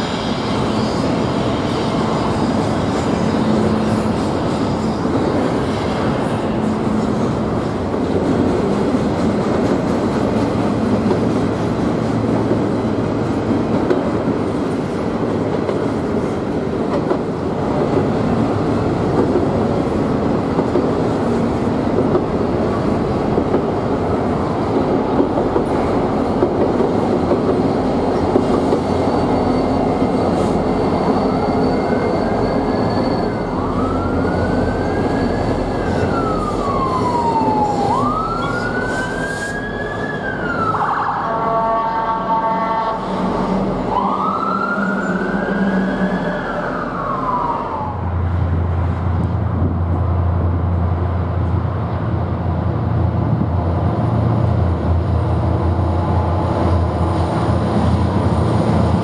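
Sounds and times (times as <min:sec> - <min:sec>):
freight train wheels rumbling: 0:00.0 - 0:40.8, 0:41.4 - 0:59.0
diesel locomotives: 0:00.0 - 0:59.0
siren rising in pitch: 0:33.4 - 0:41.3, 0:43.9 - 0:48.2.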